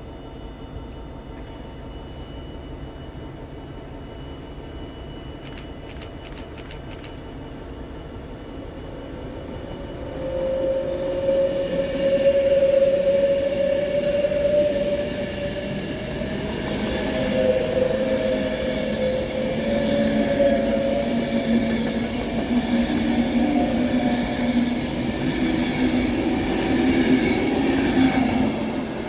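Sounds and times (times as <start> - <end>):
train high whine: 0.0 - 29.0
electric train passing: 2.7 - 29.0
quick clicks: 5.4 - 7.2.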